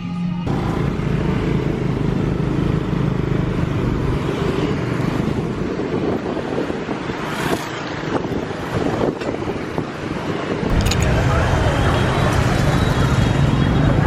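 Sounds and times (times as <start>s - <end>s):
street traffic: 0.0s - 14.0s
vehicle engine running: 0.5s - 6.7s.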